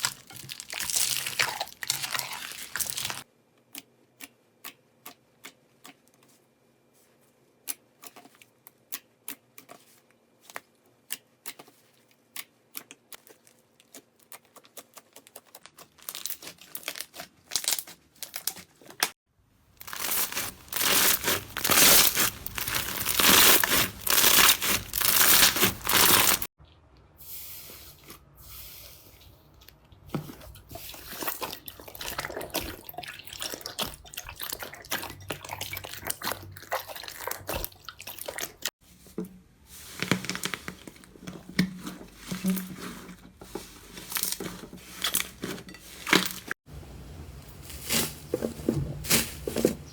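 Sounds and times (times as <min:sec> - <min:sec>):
slime squishing: 0:00.0 - 0:06.4, 0:07.6 - 0:19.1, 0:19.8 - 0:26.8, 0:29.0 - 0:38.7
slime crackling and popping: 0:19.8 - 0:26.5.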